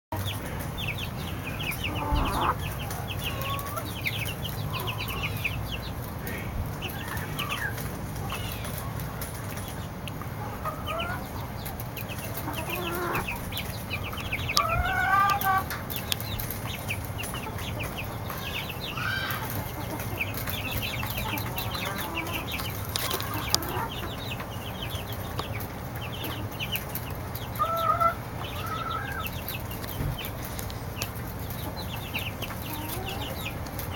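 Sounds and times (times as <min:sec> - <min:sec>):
baby chicks peeping: 0:00.1 - 0:33.9
louder lower chick calls: 0:01.7 - 0:04.0, 0:18.4 - 0:20.0.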